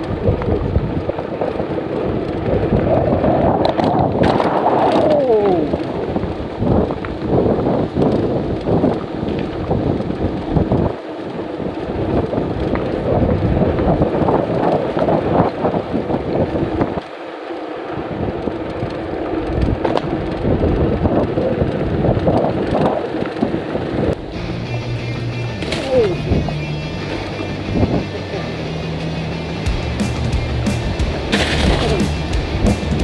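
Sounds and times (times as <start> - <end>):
gusty wind buffeting microphone: 0.0 - 17.0, 17.9 - 25.6.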